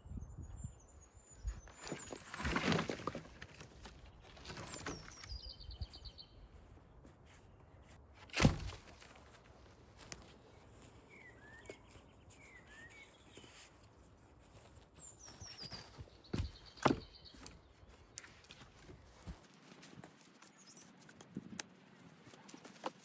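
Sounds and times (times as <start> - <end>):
songbirds chirping: 0.0 - 23.0
sharp wooden thunk: 8.3 - 9.1, 16.3 - 17.5.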